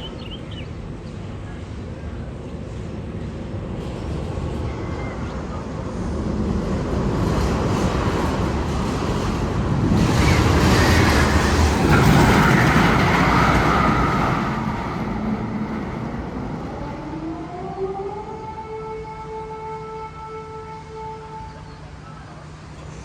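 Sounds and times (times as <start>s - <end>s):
roller coaster rumbling on track: 0.0s - 19.8s, 20.4s - 23.0s
rising siren-like wail: 13.2s - 21.1s.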